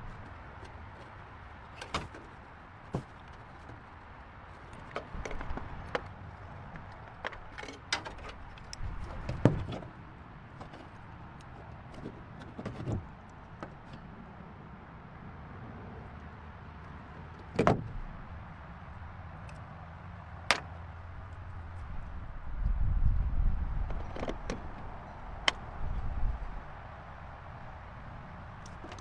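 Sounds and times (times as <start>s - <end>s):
clicks and clunks of hand tools: 0.0s - 3.9s, 4.5s - 10.0s, 20.5s - 20.7s, 23.8s - 25.7s, 28.6s - 29.0s.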